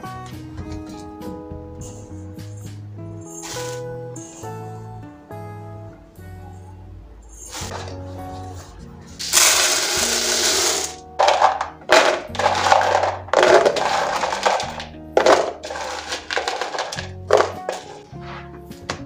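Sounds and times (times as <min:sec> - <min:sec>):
soft background music: 0:00.0 - 0:19.0
dry grains pouring into containers: 0:09.2 - 0:18.0.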